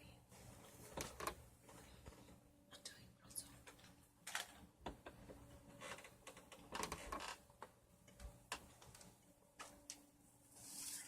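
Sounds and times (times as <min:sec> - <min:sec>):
faint clicks and rustles: 0:03.5 - 0:10.1.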